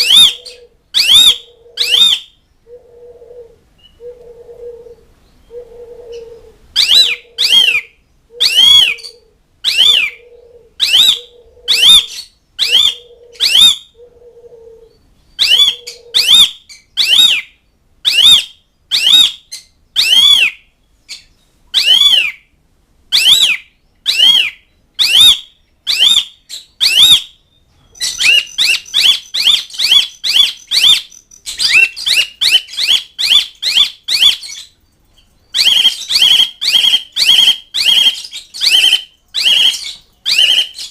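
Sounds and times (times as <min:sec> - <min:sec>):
low steady hoot: 0:00.0 - 0:16.5
starling calling: 0:00.0 - 0:22.5, 0:23.1 - 0:40.9.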